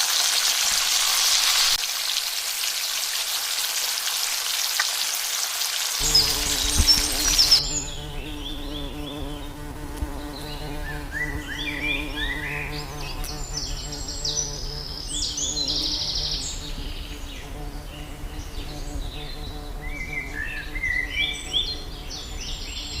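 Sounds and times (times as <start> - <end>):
frying sizzle: 0.0 - 7.6
insect-like buzz: 0.0 - 23.0
high bird chirps: 6.0 - 9.6.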